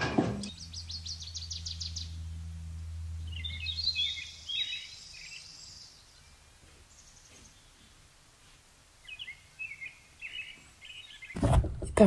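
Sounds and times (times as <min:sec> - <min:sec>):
bird chirps: 0:00.0 - 0:08.0, 0:09.0 - 0:11.4
low hum: 0:00.0 - 0:09.0
bird trilling: 0:03.2 - 0:05.9.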